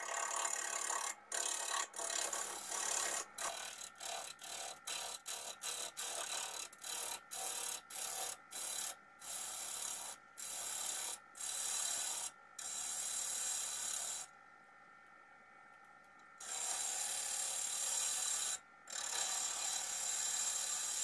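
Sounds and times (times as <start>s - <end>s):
lathe gouge cutting wood: 0.1s - 5.5s.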